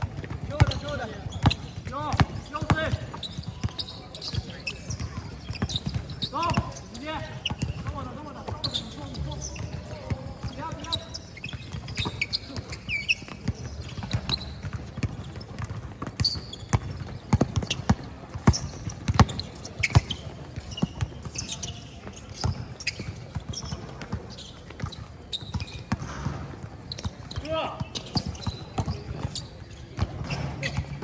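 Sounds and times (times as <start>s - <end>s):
players' voices: 0.0s - 13.0s, 26.0s - 29.4s
basketball bouncing: 0.0s - 21.3s, 22.4s - 29.4s
shoe squeaks on court: 0.2s - 31.0s.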